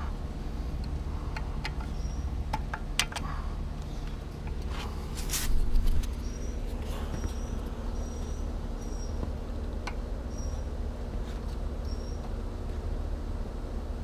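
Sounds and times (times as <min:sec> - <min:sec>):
thin high squeaks: 0:10.3 - 0:12.3.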